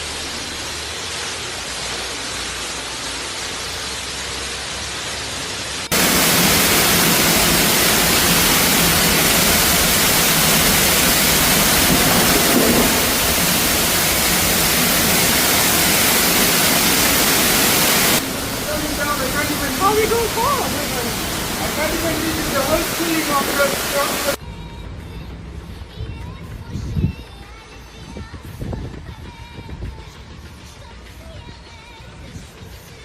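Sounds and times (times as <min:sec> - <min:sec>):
harsh rush of water: 0:00.0 - 0:24.4
heavy rain hissing: 0:00.0 - 0:24.4.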